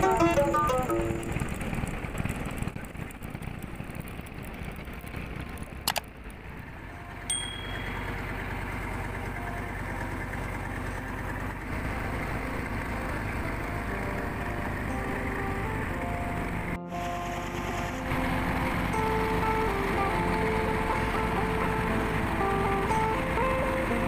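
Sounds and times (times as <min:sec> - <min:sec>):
faint music notes: 0:00.0 - 0:01.8, 0:06.5 - 0:24.0
boat engine humming: 0:00.0 - 0:24.0
sharp click: 0:05.9 - 0:06.1.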